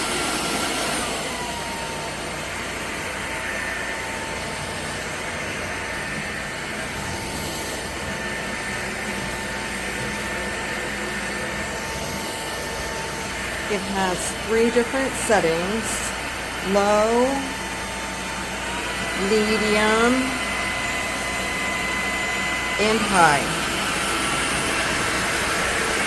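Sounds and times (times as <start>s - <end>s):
stick vacuum motor whine: 0.0s - 26.0s.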